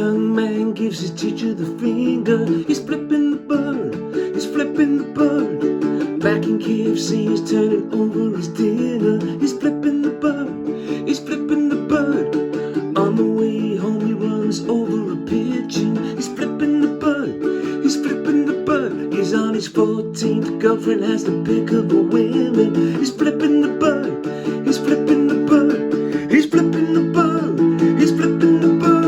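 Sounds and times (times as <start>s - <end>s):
strummed acoustic string instrument: 0.0s - 29.0s.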